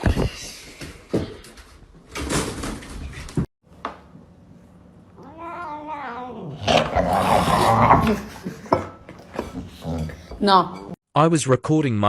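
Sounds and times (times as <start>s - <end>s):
cat meowing: 5.2s - 6.7s.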